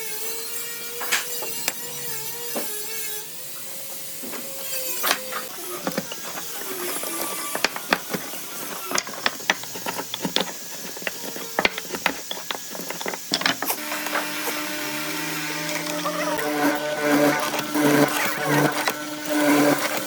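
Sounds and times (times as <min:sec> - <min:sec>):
wood and tools tapping: 0:04.2 - 0:20.0
steady hum: 0:07.2 - 0:20.0.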